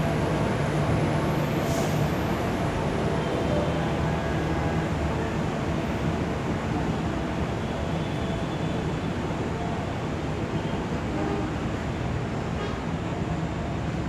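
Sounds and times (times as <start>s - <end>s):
train rumbling: 0.0s - 7.5s.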